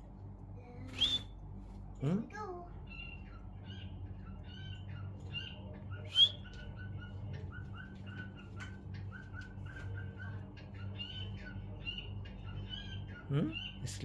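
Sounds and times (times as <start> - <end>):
birds chirping: 0.6 - 14.0
shrill bird call: 3.6 - 7.1.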